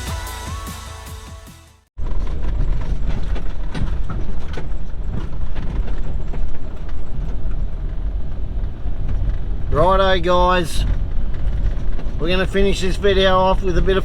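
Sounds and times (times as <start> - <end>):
vehicle engine and road rumble: 1.8 - 14.0
knocks and rattles: 2.0 - 10.0, 10.7 - 13.3.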